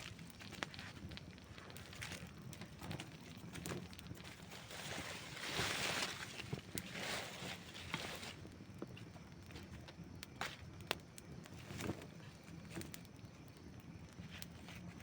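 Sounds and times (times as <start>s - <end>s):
fire hissing: 0.0s - 9.3s
campfire crackling: 0.0s - 15.0s.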